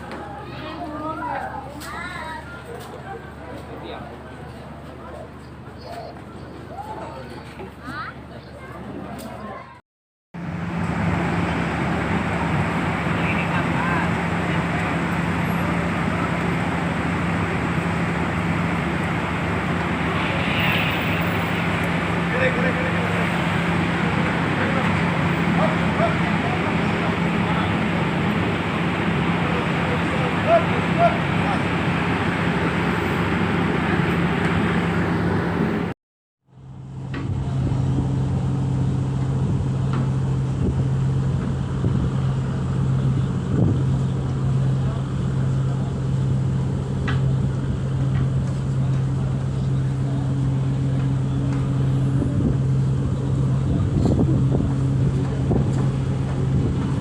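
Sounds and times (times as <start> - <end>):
ferry engines droning: 0.0 - 9.8, 10.4 - 57.0
wide rushing noise: 10.4 - 35.9.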